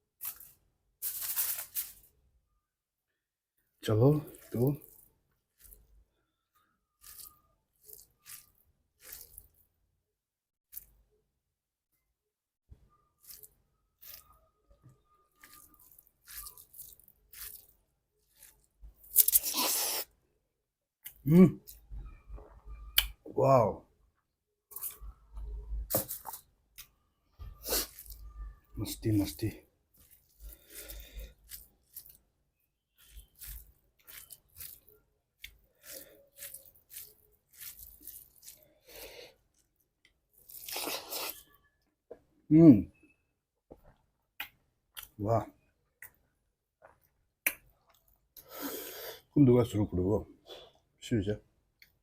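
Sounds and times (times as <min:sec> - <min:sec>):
crunchy chewing: 0:04.2 - 0:06.0, 0:06.9 - 0:09.7, 0:13.2 - 0:14.4, 0:15.3 - 0:19.7, 0:27.5 - 0:32.3, 0:33.0 - 0:41.6.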